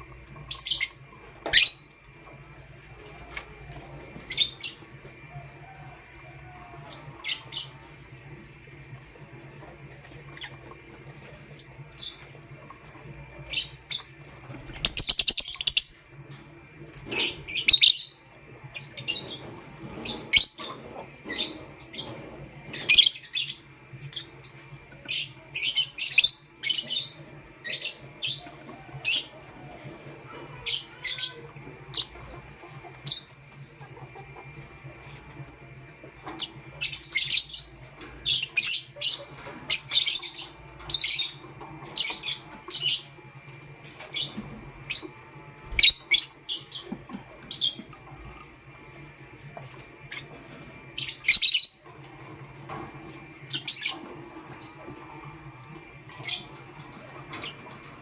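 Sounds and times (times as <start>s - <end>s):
lovebirds chirping: 13.4s - 16.0s.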